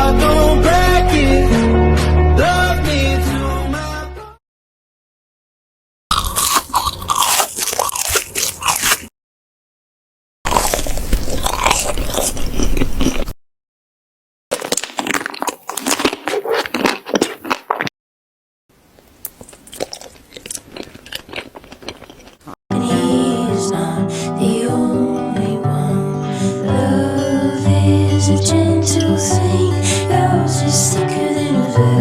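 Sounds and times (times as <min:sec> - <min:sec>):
cat chewing and crunching food: 0:06.1 - 0:09.1, 0:10.5 - 0:13.4, 0:14.5 - 0:17.9, 0:19.0 - 0:22.6.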